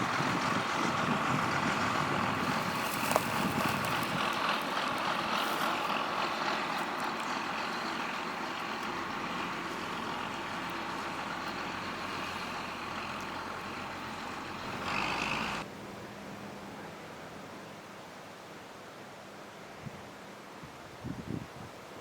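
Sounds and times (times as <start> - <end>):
heavy machinery running: 0.0 - 15.6.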